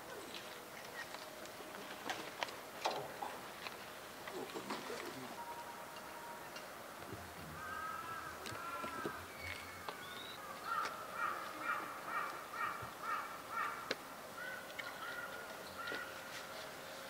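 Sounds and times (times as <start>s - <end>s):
bird calling: 7.4s - 16.8s.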